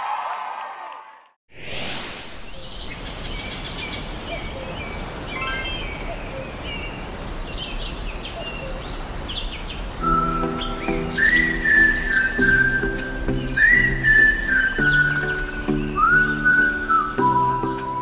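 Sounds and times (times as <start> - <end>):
brief whoosh: 1.5 - 2.8
birds chirping and calling: 2.5 - 18.0.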